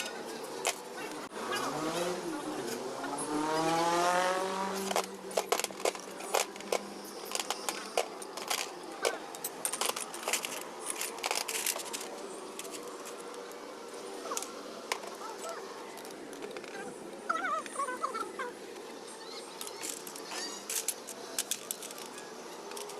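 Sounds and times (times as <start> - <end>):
metallic clicks and clinks: 4.8 - 13.6, 19.5 - 22.9.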